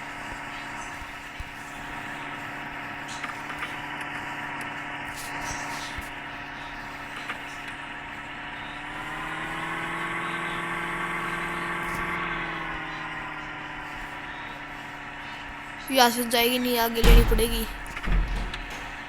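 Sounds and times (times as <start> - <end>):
car engine at low revs: 6.6 - 15.1.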